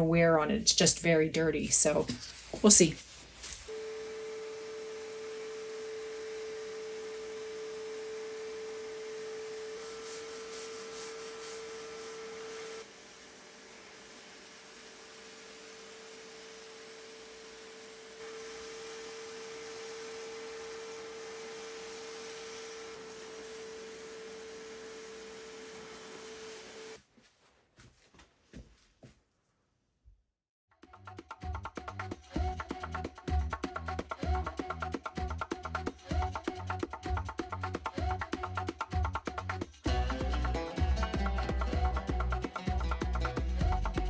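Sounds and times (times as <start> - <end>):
spot cleaner motor whine: 3.7 - 27.0.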